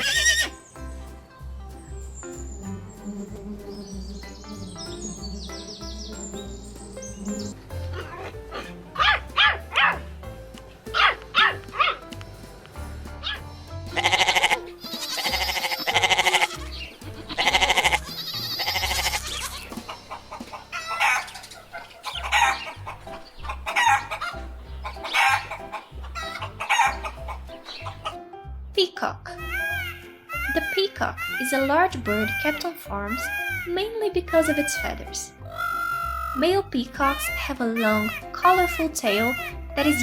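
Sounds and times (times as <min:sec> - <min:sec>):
animal calls: 0:00.0 - 0:00.6, 0:04.8 - 0:10.1, 0:10.9 - 0:12.0, 0:13.2 - 0:28.2, 0:35.5 - 0:36.4
background music: 0:00.0 - 0:40.0.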